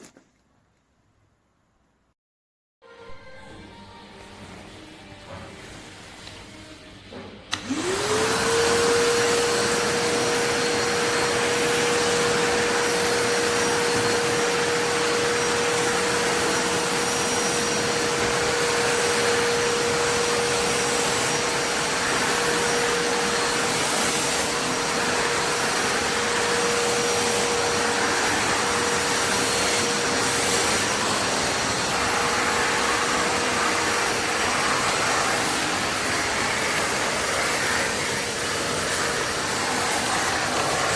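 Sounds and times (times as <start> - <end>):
vacuum cleaner motor whine: 3.0 - 40.9
rush of airflow: 19.4 - 40.9.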